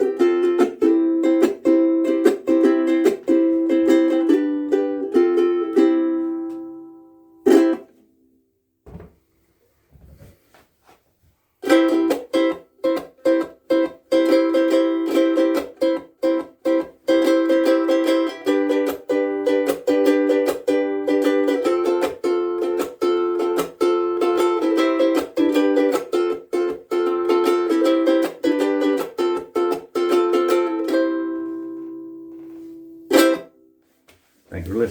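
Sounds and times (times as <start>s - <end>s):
ukulele strumming chords: 0.0s - 8.4s, 11.6s - 33.8s.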